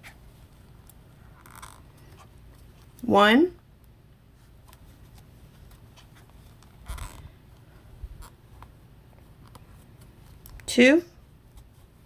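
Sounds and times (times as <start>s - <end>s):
crochet hook scratching yarn: 6.0s - 7.2s.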